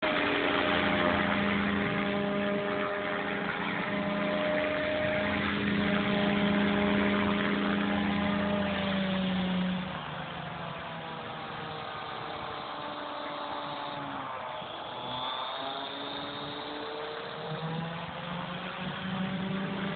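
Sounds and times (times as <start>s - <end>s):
helicopter motor and rotor whine: 0.0s - 19.9s.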